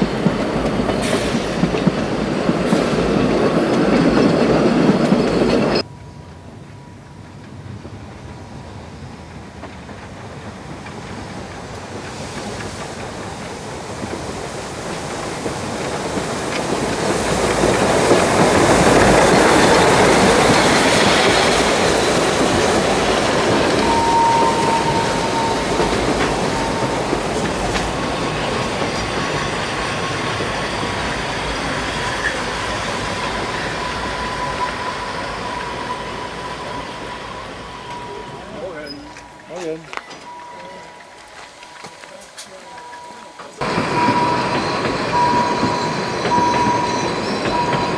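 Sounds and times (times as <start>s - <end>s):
high wheel squeal: 0.0s - 6.8s, 16.8s - 47.9s
train running past: 0.0s - 47.9s.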